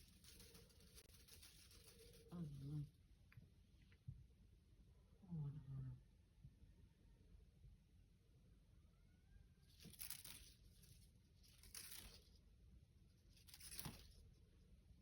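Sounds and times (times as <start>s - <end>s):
faint scratchy rustles: 0.0s - 3.8s, 9.7s - 14.6s.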